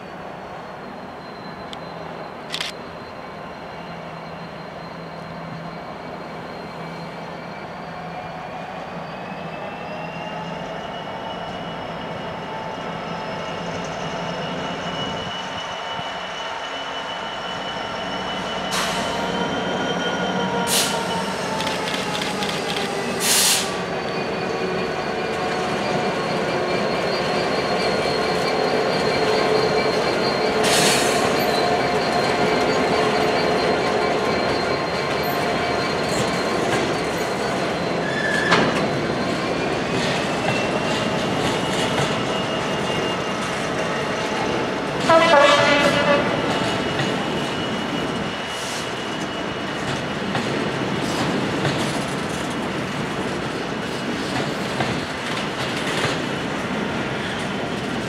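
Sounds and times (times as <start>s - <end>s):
train wheels squealing: 0.0s - 58.0s
train wagons rumbling: 18.3s - 58.0s.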